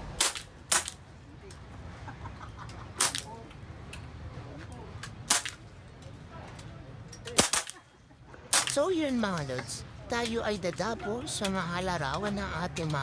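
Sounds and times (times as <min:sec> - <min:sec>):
airgun shots: 0:00.2 - 0:01.0, 0:03.0 - 0:03.3, 0:05.3 - 0:05.6, 0:07.4 - 0:07.8, 0:08.5 - 0:08.8
faint background chatter: 0:01.0 - 0:13.0.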